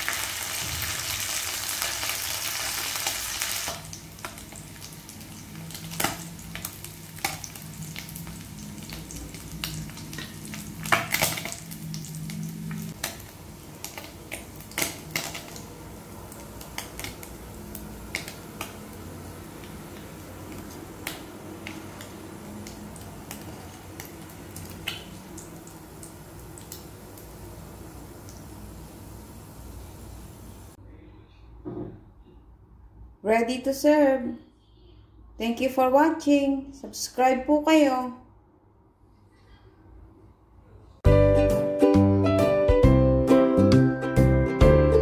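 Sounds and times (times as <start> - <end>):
fish sizzling in oil: 0.0 - 30.8.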